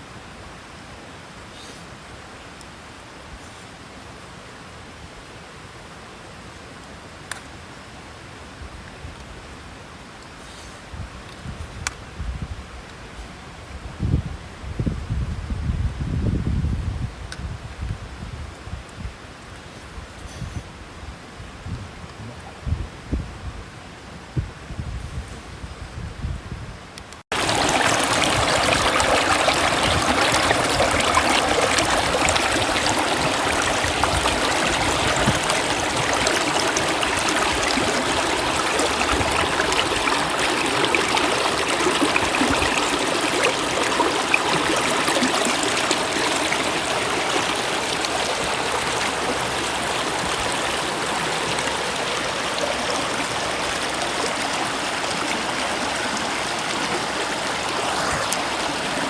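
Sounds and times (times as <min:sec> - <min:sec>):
stream water running: 0:27.3 - 0:59.0.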